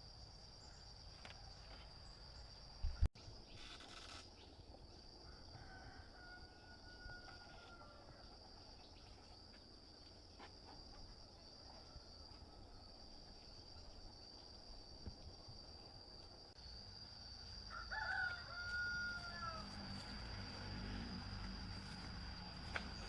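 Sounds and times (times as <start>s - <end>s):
rooster crowing: 5.3s - 8.3s, 17.6s - 23.0s.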